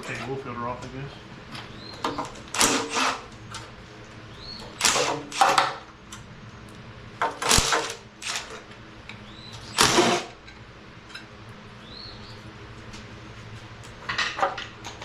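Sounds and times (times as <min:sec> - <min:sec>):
power tool loosening bolts: 0:02.0 - 0:03.7, 0:04.6 - 0:05.8, 0:07.2 - 0:08.7, 0:09.6 - 0:10.4.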